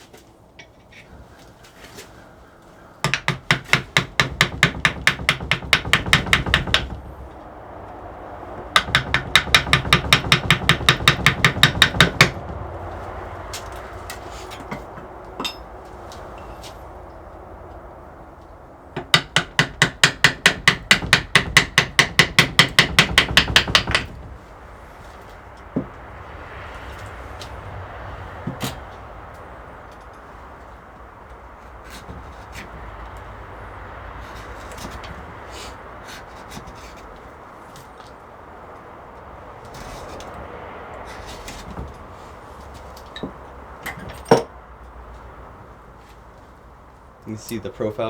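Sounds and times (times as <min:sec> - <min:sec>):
rapid tapping on wood: 0:03.0 - 0:07.3, 0:08.6 - 0:15.2, 0:19.0 - 0:24.4.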